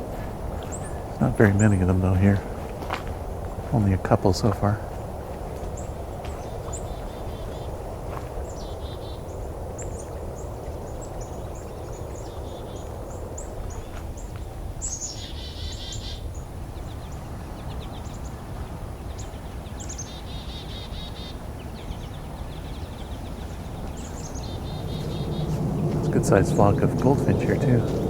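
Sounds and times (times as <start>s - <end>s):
finches calling and twittering: 0.0s - 28.0s
low rumble: 22.8s - 28.0s.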